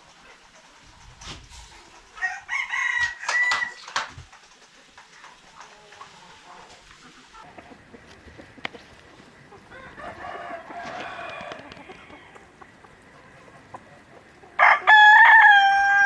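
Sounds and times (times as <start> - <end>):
chickens clucking: 0.0 - 16.0
rooster crowing: 2.1 - 3.9, 9.4 - 16.0.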